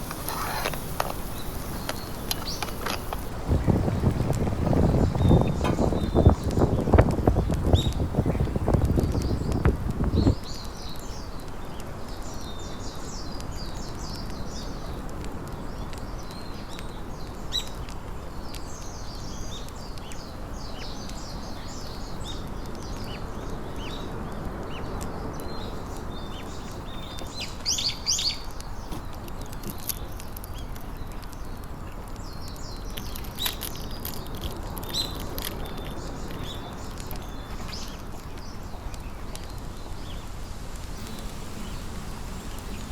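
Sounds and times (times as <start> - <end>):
outdoor background rush: 0.0 - 42.9
small birds chirping: 0.0 - 42.9
brief low rumble: 40.1 - 42.9.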